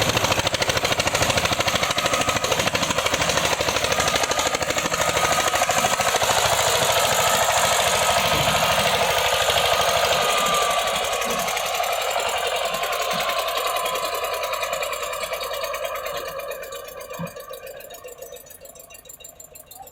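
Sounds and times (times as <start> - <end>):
tractor diesel engine knocking: 0.0 - 19.9.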